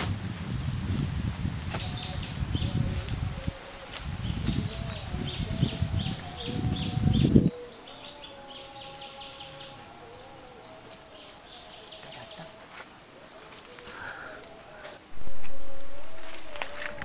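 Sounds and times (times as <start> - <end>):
birds chirping: 1.8 - 17.0
loud low rumbling: 15.1 - 17.0.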